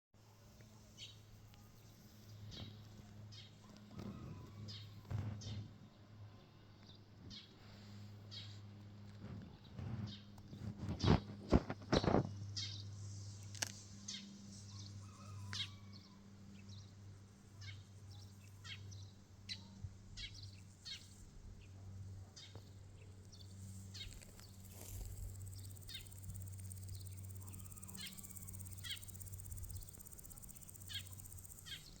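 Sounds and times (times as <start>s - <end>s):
steady low hum: 16.2s - 32.0s
bird chirps: 23.4s - 32.0s.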